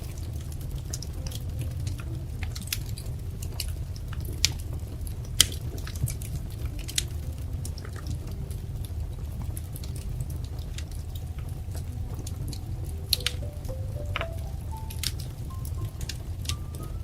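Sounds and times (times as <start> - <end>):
low rumble of burning: 0.0 - 17.0
wood fire crackling: 0.0 - 17.0
fire pops and snaps: 0.1 - 13.4.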